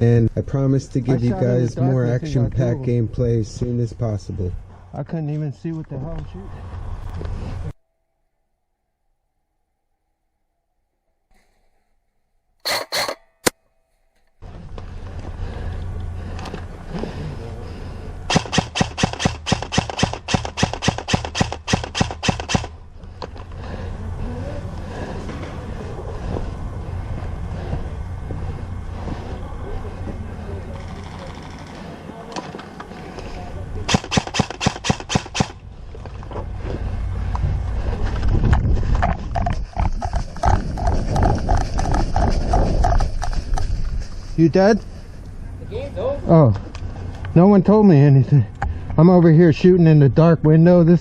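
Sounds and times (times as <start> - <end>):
rumbling movement noise: 14.4 - 18.3, 22.7 - 33.9, 35.6 - 50.6
airsoft gun rapid fire: 18.3 - 22.8, 33.9 - 35.6.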